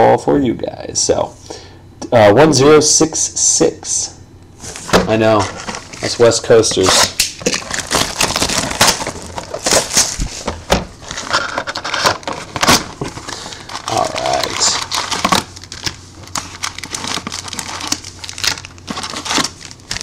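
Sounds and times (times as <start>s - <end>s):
plastic wrapping crinkling and tearing: 4.6s - 20.0s.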